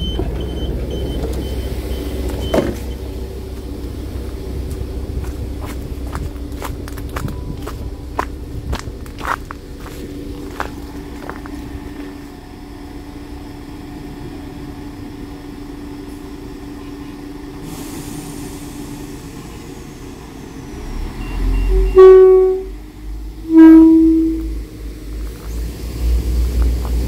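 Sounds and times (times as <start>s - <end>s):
diesel train engines rumbling: 0.0s - 27.0s
train horn toots: 21.4s - 22.8s, 23.4s - 24.6s.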